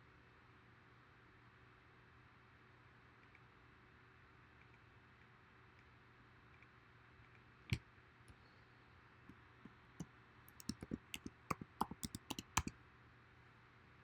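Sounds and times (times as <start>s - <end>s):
keyboard keys clicking: 10.5s - 12.7s.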